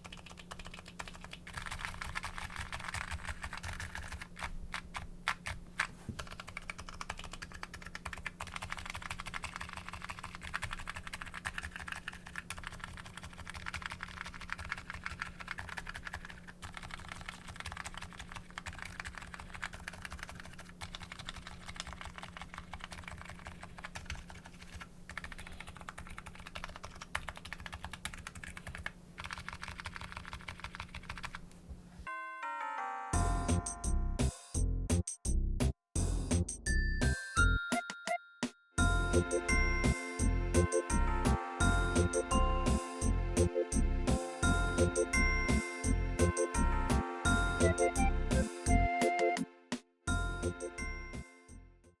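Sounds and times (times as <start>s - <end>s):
fast keyboard typing: 0.0s - 31.5s
chiming musical jingle: 32.1s - 34.1s, 36.7s - 43.1s, 44.4s - 48.6s.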